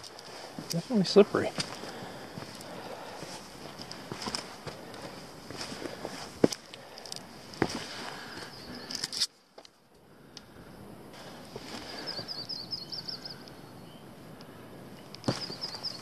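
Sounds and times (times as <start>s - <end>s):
footsteps on rocky trail: 0.0s - 9.8s, 11.5s - 12.4s, 15.2s - 16.0s
songbird chirping: 8.2s - 9.1s, 11.7s - 14.2s, 15.0s - 16.0s.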